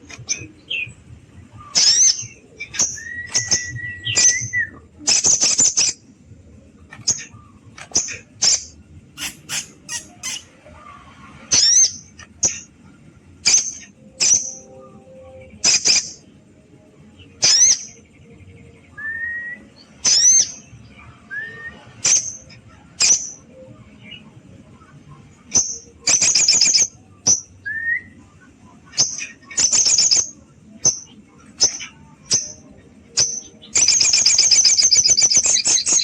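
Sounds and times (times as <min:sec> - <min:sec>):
bird sharp high calls: 0:01.6 - 0:06.0, 0:07.0 - 0:10.7
bird rattling calls: 0:09.2 - 0:10.5.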